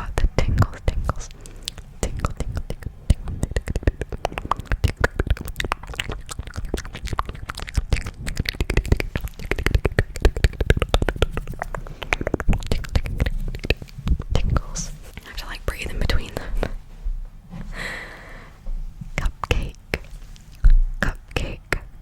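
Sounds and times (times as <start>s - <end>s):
wet mouth clicks and pops: 0.4s - 15.3s.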